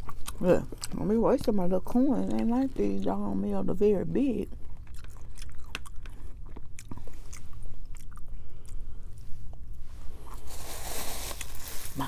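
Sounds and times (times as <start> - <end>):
person chewing food: 0.0 - 3.4, 4.4 - 10.5
rustling: 9.8 - 12.0.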